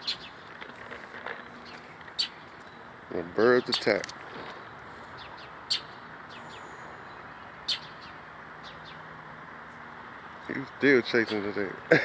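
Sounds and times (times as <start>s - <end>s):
steady outdoor hiss: 0.0s - 12.0s
bird chirping sharply: 5.0s - 9.0s.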